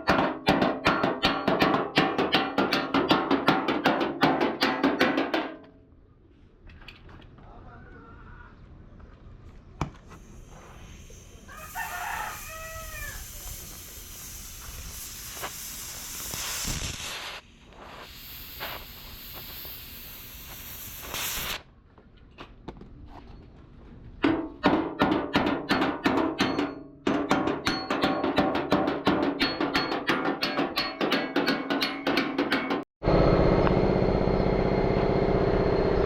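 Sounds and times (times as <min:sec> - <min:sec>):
loud rhythmic percussion: 0:00.0 - 0:05.6, 0:24.2 - 0:32.9
steady hiss: 0:10.0 - 0:21.6
rooster crowing: 0:11.5 - 0:13.4.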